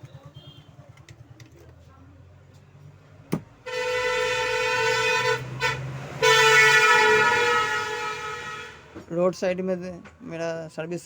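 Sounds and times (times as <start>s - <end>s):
vehicle horn blasts: 0.0s - 0.8s, 3.6s - 9.0s.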